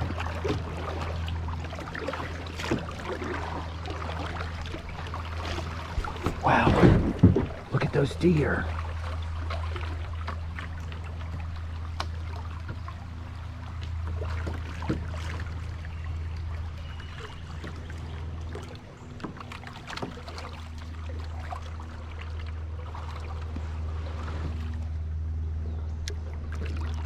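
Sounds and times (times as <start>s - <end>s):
paddle splashing water: 0.0s - 25.1s, 26.0s - 27.0s
steady low hum: 0.0s - 27.0s.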